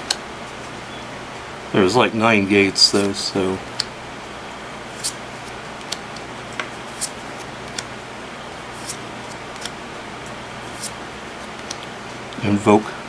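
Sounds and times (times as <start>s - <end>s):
cards ticking as slid off: 0.0s - 0.7s, 3.0s - 4.0s, 4.8s - 8.0s, 8.6s - 12.0s
faint hum: 0.0s - 13.0s
steady hiss: 0.0s - 13.0s.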